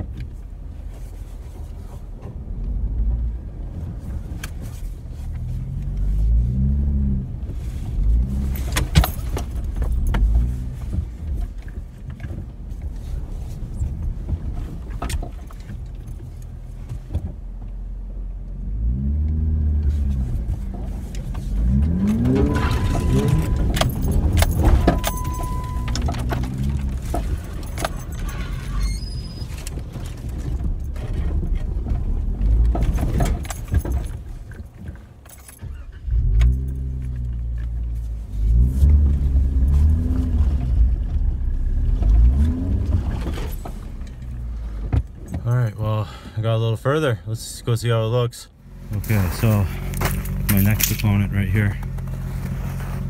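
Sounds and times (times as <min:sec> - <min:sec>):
vehicle engine revving: 0:05.1 - 0:11.0, 0:18.5 - 0:28.8, 0:36.0 - 0:44.9
short high beeps: 0:22.4 - 0:23.8, 0:24.9 - 0:26.0.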